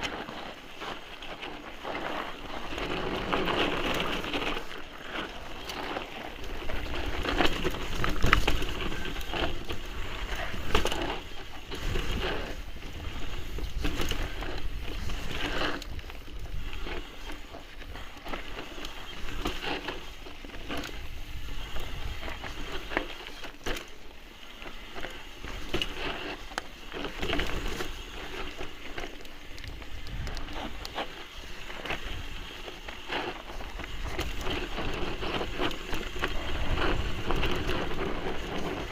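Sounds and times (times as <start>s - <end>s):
bike rattling and knocking: 0.0s - 24.0s
tyres crunching over stones: 0.0s - 38.9s
wind rumble on microphone: 20.8s - 23.0s, 29.6s - 31.1s, 33.6s - 38.9s.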